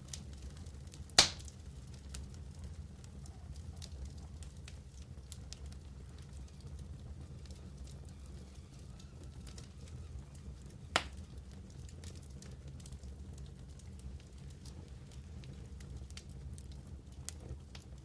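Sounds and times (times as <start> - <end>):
wood fire crackling: 0.0 - 18.0
loud pop from fire: 1.1 - 1.5.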